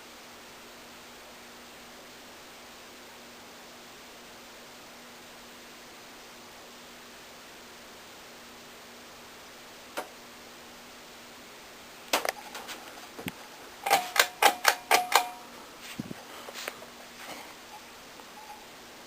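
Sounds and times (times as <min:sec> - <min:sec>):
sharp mechanical clicks: 0:13.8 - 0:15.4
faint ringing tone: 0:17.2 - 0:19.0.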